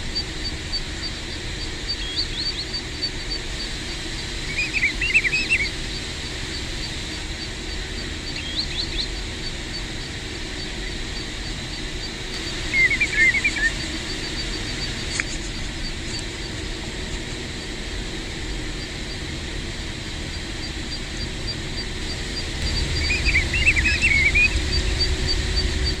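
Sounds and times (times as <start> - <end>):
plovers whistled calls: 0.0 - 26.0
low rumble: 20.8 - 26.0.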